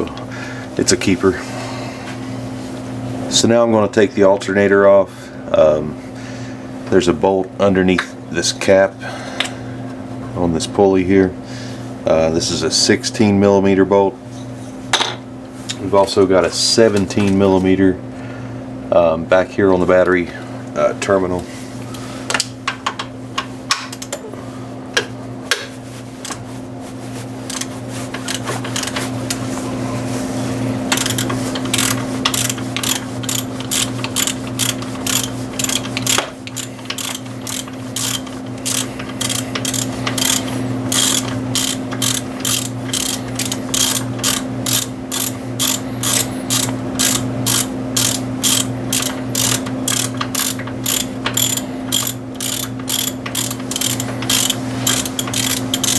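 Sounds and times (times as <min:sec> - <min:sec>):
steady low hum: 0:00.0 - 0:55.9
ratchet wrench clicking: 0:27.5 - 0:29.0, 0:30.9 - 0:55.9.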